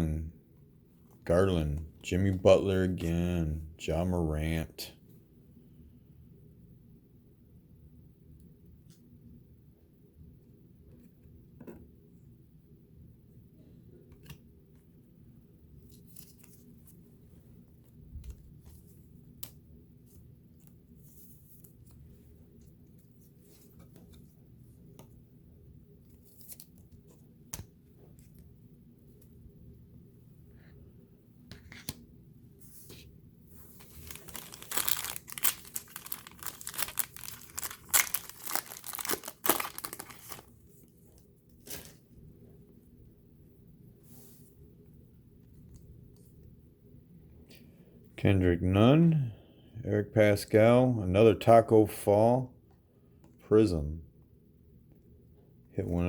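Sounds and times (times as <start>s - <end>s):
card wrapper crinkling: 33.7s - 40.6s.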